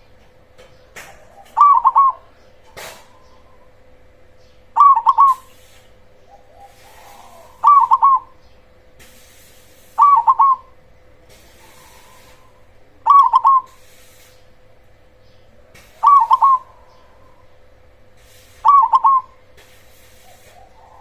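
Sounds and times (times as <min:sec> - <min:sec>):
dove cooing: 0:01.0 - 0:03.9, 0:04.8 - 0:05.6, 0:06.2 - 0:08.4, 0:10.0 - 0:13.8, 0:15.5 - 0:17.7, 0:18.6 - 0:19.5, 0:20.3 - 0:21.0
faint coos: 0:06.3 - 0:08.3, 0:11.5 - 0:13.7, 0:15.5 - 0:17.7, 0:20.5 - 0:21.0.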